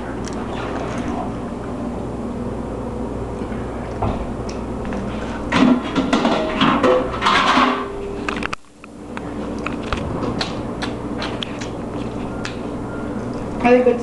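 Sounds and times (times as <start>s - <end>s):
steady background hum: 0.0s - 14.0s
dishes clattering: 5.5s - 7.9s.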